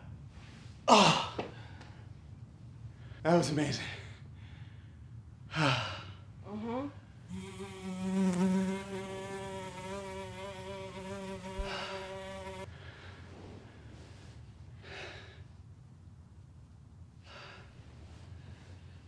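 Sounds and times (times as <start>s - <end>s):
fly buzzing: 7.3s - 12.7s.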